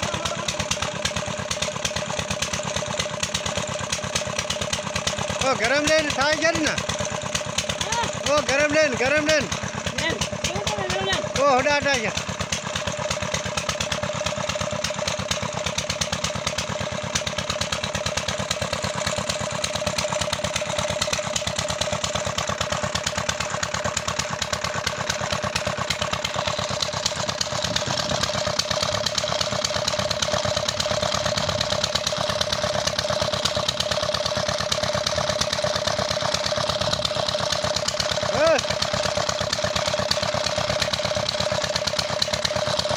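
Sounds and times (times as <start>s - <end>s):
engine running steadily: 0.0s - 42.9s.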